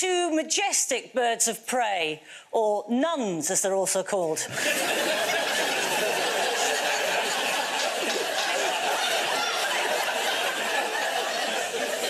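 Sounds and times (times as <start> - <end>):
studio audience laughing: 4.5 - 12.0.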